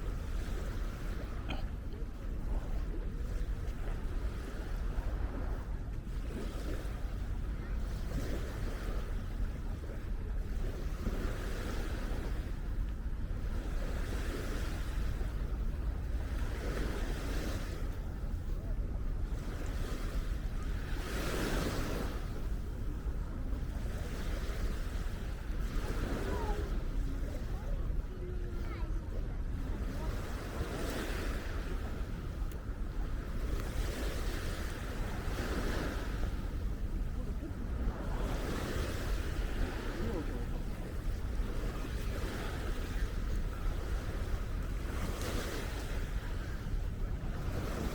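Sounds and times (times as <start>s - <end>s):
small waves washing onto shore: 0.0s - 47.9s
wind buffeting microphone: 0.0s - 47.9s.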